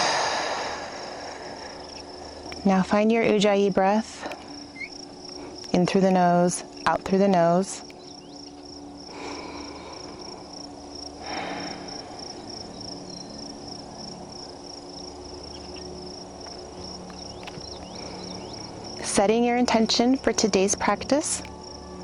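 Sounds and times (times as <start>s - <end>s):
slow nasal breaths: 0.0s - 2.6s, 9.1s - 10.6s, 11.2s - 12.4s
insects chirping trill: 0.0s - 22.0s.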